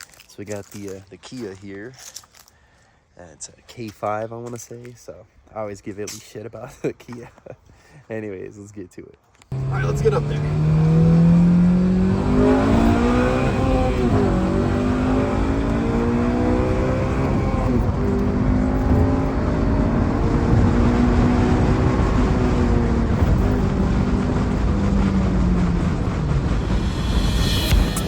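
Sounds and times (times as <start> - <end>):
car engine running: 9.5 - 20.9, 22.3 - 28.0
road rumble: 9.5 - 28.0.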